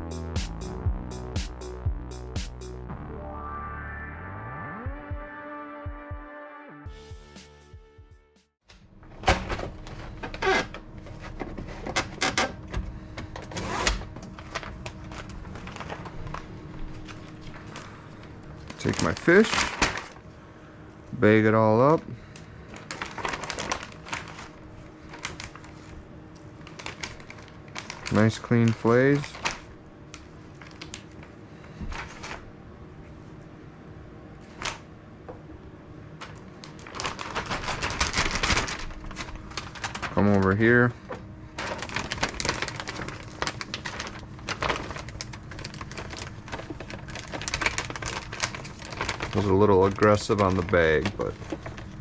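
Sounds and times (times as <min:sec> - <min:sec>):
plastic bag crinkling: 0:14.2 - 0:20.2, 0:22.7 - 0:29.7, 0:30.3 - 0:31.3, 0:36.3 - 0:40.9, 0:41.5 - 0:52.0.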